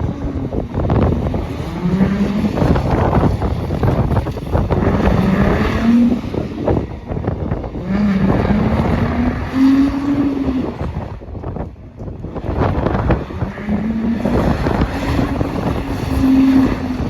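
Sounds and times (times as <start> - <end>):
car engine revving hard: 0.0 - 11.7, 12.3 - 17.0
heavy rushing noise: 0.0 - 17.0.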